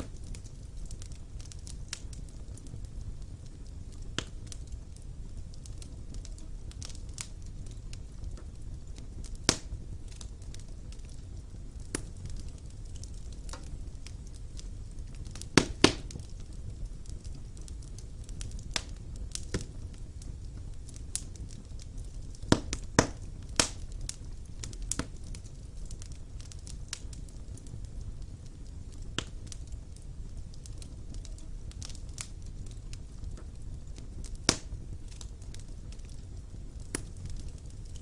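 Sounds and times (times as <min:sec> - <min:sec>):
wood fire crackling and popping: 0:00.0 - 0:38.0.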